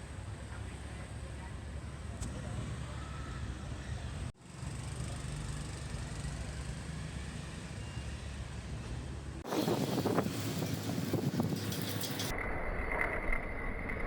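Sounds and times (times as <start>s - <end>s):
street noise: 0.0s - 14.0s
vehicle rumble: 0.0s - 14.0s
scattered knocks and clicks: 10.0s - 12.3s.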